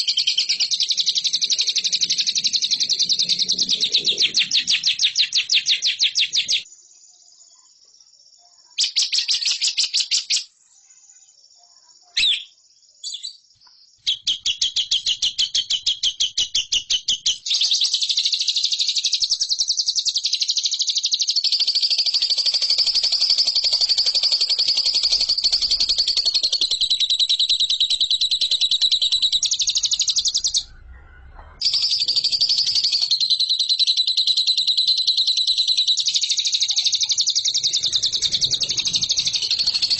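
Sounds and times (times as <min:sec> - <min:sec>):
lovebird trilling: 0:21.5 - 0:30.7, 0:31.6 - 0:39.9.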